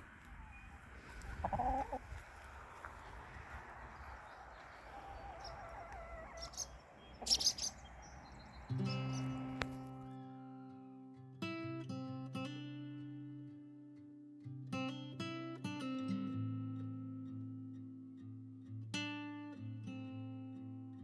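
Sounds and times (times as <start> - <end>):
chickens clucking: 0.0 - 9.9
sharp clicks: 7.3 - 9.8
acoustic guitar music: 8.7 - 21.0.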